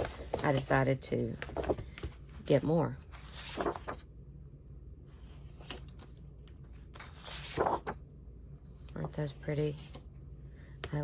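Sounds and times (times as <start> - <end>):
paper sheets rustling: 0.0 - 4.0, 5.3 - 8.0.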